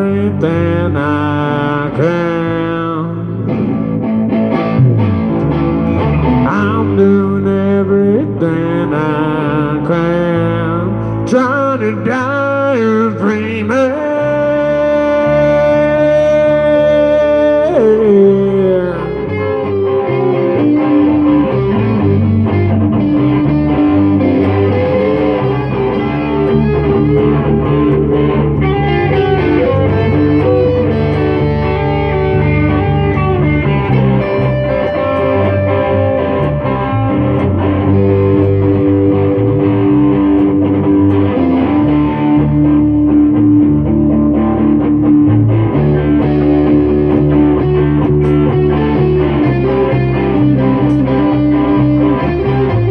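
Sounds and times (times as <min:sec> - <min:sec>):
low steady accompaniment: 0:00.0 - 0:07.3, 0:19.3 - 0:52.9
lead guitar with bending notes: 0:00.0 - 0:52.9.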